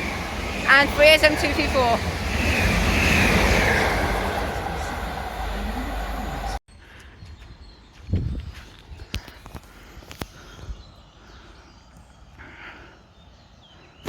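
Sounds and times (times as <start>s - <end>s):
train passing: 0.0s - 6.6s.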